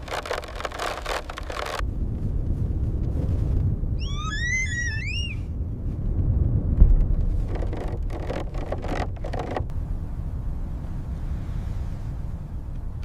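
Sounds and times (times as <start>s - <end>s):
scraping rustling noises: 0.0s - 3.6s, 7.1s - 9.7s
blizzard wind rumble: 0.0s - 13.0s.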